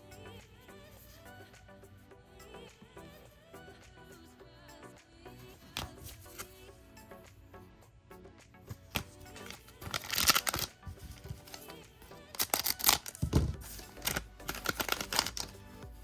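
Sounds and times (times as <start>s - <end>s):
background music: 0.0s - 16.0s
card pack wrapper crinkling: 8.9s - 11.8s, 12.4s - 15.8s.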